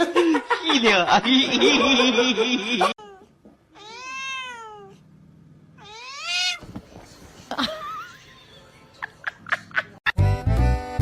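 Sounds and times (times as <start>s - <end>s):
cat meowing: 3.0s - 5.0s, 5.8s - 6.6s.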